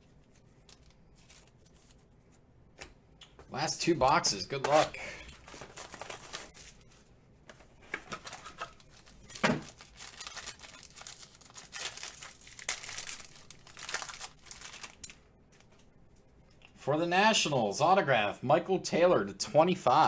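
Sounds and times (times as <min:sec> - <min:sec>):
wrapping crinkling and tearing: 0:00.0 - 0:02.2, 0:04.6 - 0:07.1, 0:07.8 - 0:15.9.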